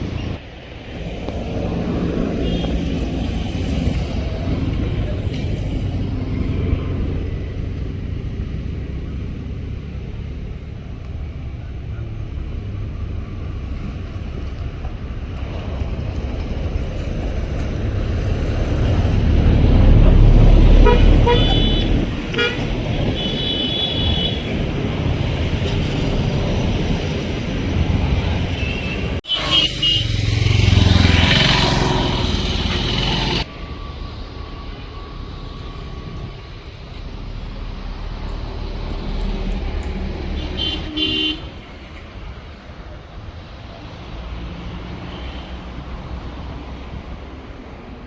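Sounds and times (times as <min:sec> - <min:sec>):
heavy vehicle rumbling past: 0:00.0 - 0:48.0
vehicle horn toots: 0:02.4 - 0:03.0, 0:20.7 - 0:24.6, 0:28.5 - 0:33.4, 0:40.4 - 0:41.6.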